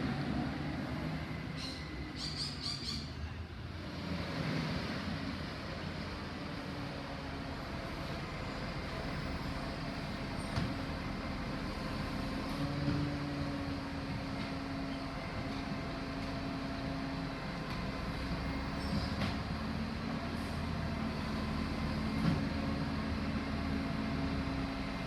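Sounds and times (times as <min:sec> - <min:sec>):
garbage truck engine humming: 0:05.0 - 0:25.0.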